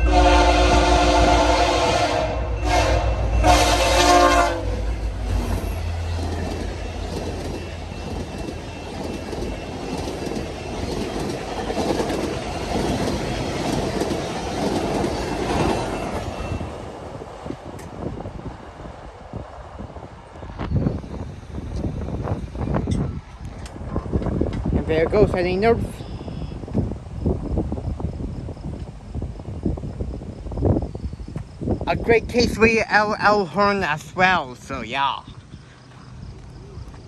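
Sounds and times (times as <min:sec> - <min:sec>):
locomotive air horn blasts: 0:00.0 - 0:04.9
train wheels rumbling and clacking: 0:02.5 - 0:25.8.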